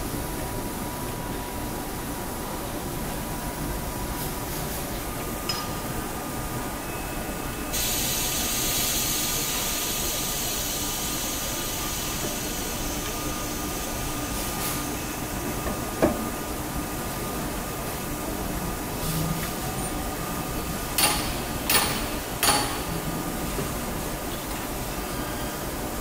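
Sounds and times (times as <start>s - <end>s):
loud steady hiss: 5.9s - 26.0s.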